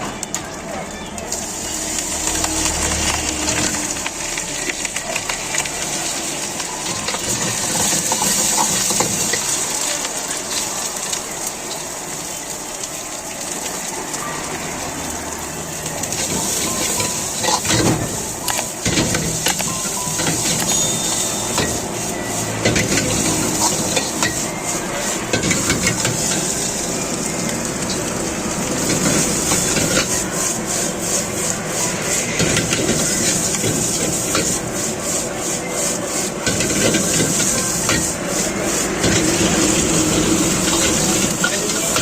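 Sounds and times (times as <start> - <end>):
rice sizzling in a wok: 0.0 - 42.0
metal ladle scraping a wok: 5.6 - 9.8, 16.0 - 26.8.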